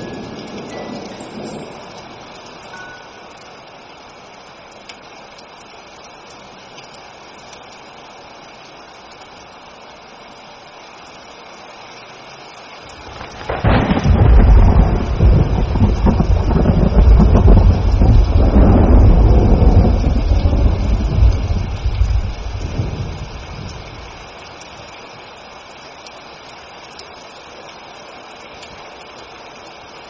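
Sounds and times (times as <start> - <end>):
thunder rumbling: 0.0 - 2.6, 12.9 - 24.4
rain hiss: 0.0 - 30.0.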